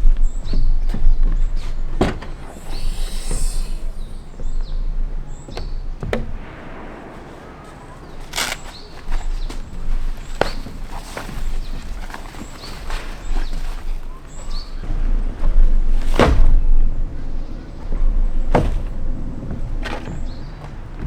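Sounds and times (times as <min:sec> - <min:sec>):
bird chirps: 0:00.0 - 0:21.0
footsteps: 0:00.0 - 0:21.0
knocks and thuds of gear: 0:00.0 - 0:21.0
rustle: 0:06.4 - 0:16.3.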